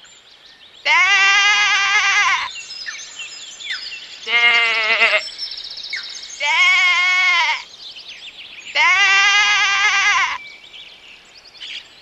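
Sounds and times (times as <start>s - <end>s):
sheep bleating: 0.9s - 2.5s, 4.2s - 5.2s, 6.4s - 7.6s, 8.8s - 10.4s.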